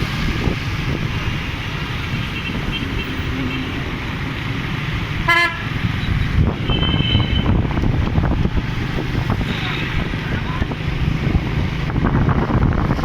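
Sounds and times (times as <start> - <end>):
street traffic rumble: 0.0 - 13.0
vehicle horn beep: 5.3 - 7.6.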